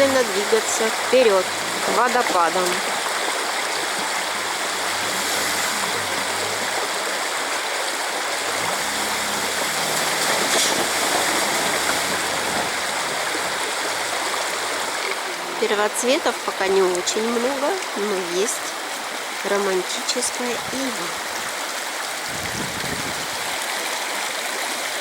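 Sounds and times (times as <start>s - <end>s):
river rushing over rocks: 0.0s - 25.0s.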